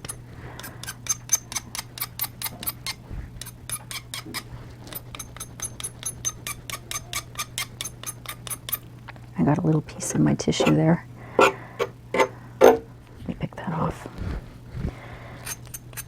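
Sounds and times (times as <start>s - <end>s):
faint steady hum: 0.0s - 16.0s
squeaky rubbing on paper: 2.4s - 8.6s.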